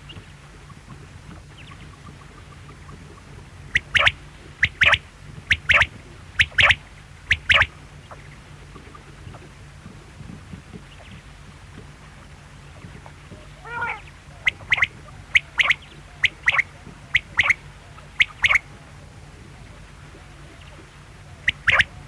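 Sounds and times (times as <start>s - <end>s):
quail calling: 3.7s - 8.9s, 13.3s - 18.8s, 21.3s - 22.0s.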